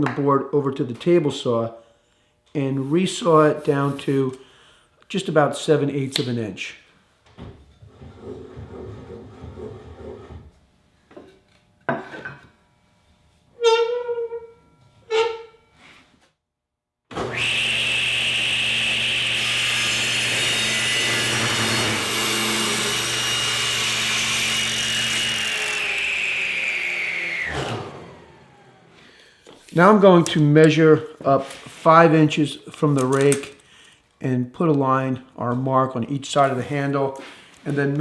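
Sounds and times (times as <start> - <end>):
table saw blade whining: 17.2 - 29.6.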